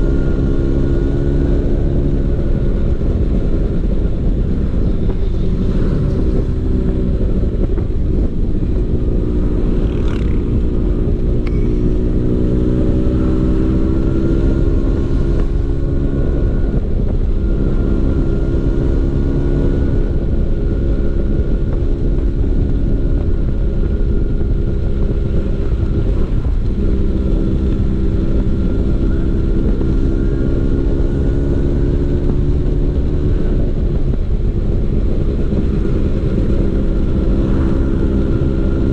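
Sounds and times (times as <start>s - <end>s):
scooter engine running: 2.8s - 15.9s.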